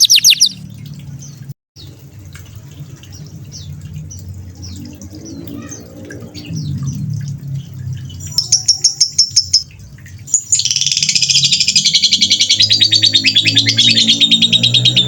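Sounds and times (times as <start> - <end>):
songbird singing trills: 0.0 - 0.6.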